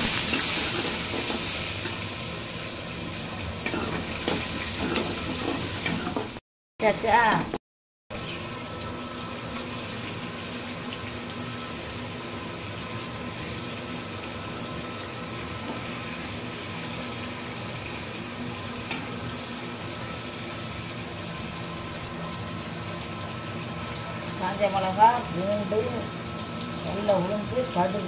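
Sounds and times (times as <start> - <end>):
greens sizzling in hot oil: 0.0 - 6.4.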